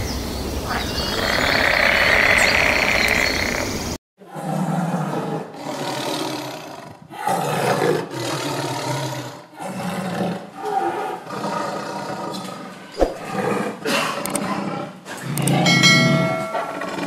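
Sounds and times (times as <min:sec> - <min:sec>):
tiger roaring and growling: 0:04.2 - 0:17.0
sharp click: 0:14.2 - 0:14.4, 0:15.3 - 0:15.6.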